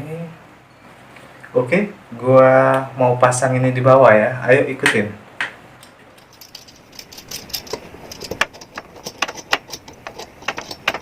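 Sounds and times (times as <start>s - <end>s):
metal stand parts clicking and rattling: 6.2s - 11.0s.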